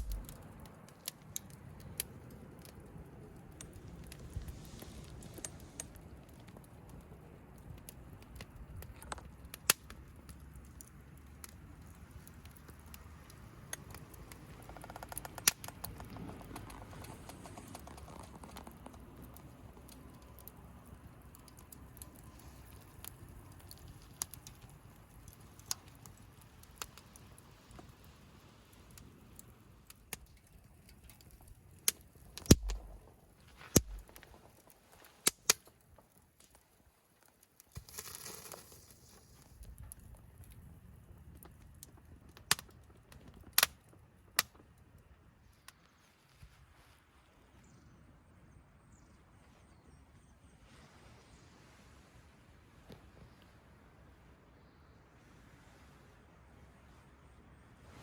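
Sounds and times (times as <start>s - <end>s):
campfire crackling and popping: 0.0s - 46.0s.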